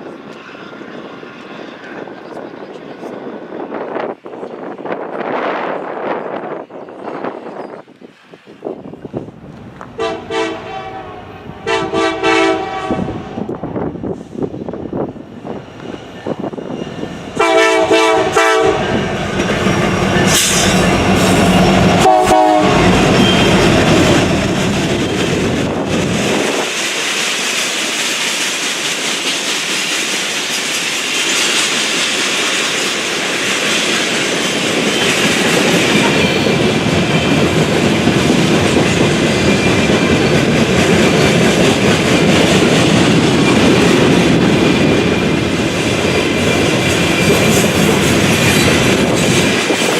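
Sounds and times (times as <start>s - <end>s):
train horn blasts: 10.0s - 13.5s, 17.4s - 19.1s, 20.2s - 23.9s
train wheels clattering: 15.7s - 49.9s.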